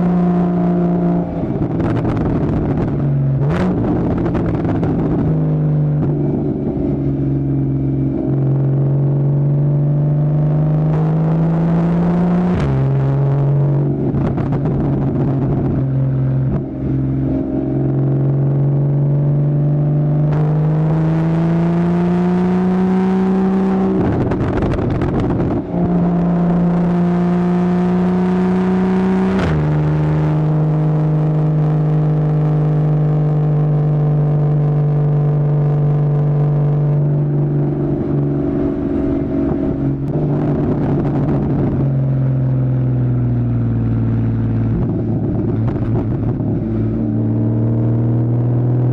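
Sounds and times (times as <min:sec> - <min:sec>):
sports car engine on road: 0:00.0 - 0:48.9.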